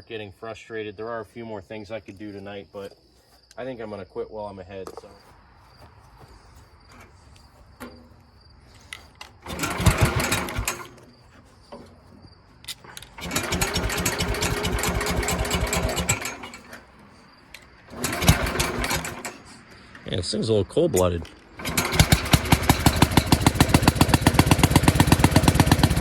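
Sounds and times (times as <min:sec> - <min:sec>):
engine cranking on starter: 0:07.8 - 0:12.1, 0:12.7 - 0:20.1, 0:21.5 - 0:26.0
engine firing and running unevenly: 0:09.4 - 0:12.0, 0:12.8 - 0:17.0, 0:17.9 - 0:19.6, 0:21.6 - 0:26.0.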